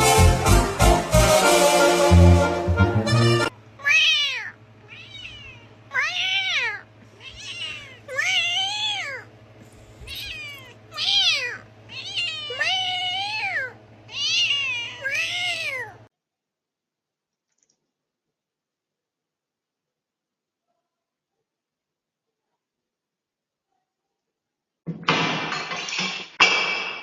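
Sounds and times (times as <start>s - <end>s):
cat meowing: 3.8s - 9.3s, 10.0s - 16.1s.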